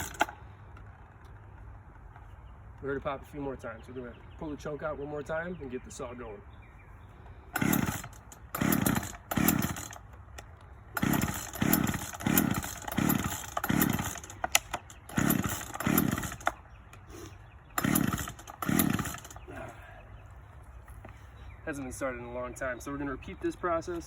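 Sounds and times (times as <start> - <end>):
chainsaw recoil starter pulls: 0.0 - 0.9, 7.5 - 16.6, 17.8 - 19.6.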